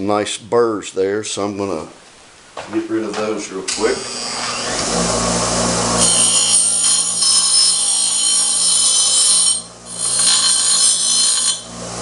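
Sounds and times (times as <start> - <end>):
metal scraping squeal: 6.0 - 11.7.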